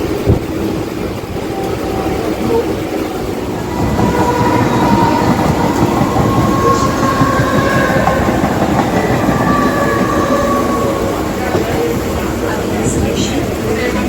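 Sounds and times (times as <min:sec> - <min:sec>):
train wheels rumbling and rattling: 0:00.0 - 0:14.0.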